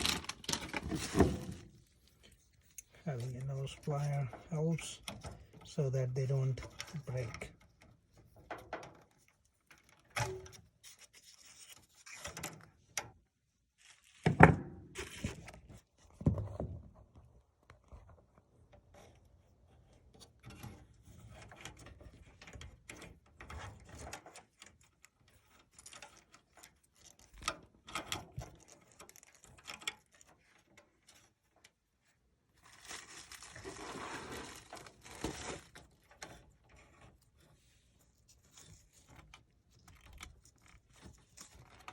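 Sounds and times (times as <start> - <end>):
rubbing: 32.7 - 35.8.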